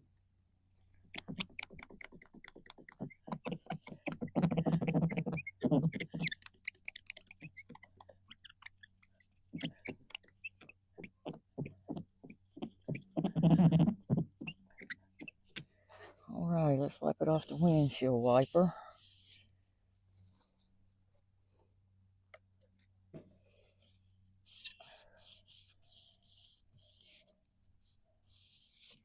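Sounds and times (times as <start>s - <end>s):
cloth scrubbing on glass: 17.3s - 19.5s.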